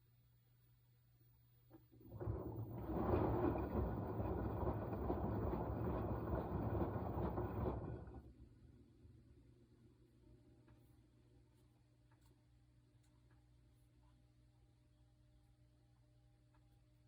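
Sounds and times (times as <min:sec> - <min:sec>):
washing machine drum turning: 0:02.0 - 0:08.3.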